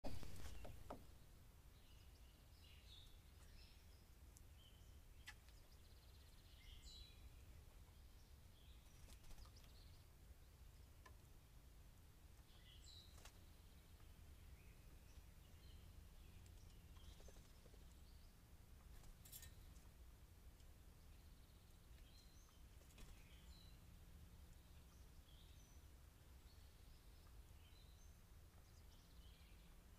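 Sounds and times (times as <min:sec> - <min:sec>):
songbirds chirping: 0:00.0 - 0:29.9.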